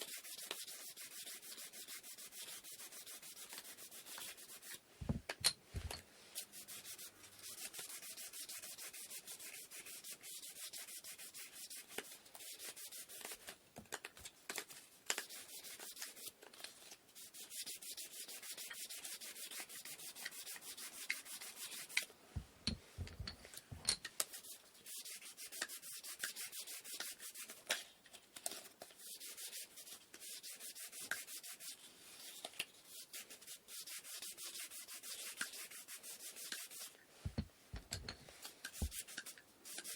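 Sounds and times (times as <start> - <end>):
sandpaper rubbing on wood: 0.0 - 4.8, 6.4 - 13.4, 17.2 - 22.0, 29.0 - 37.0, 38.8 - 39.9.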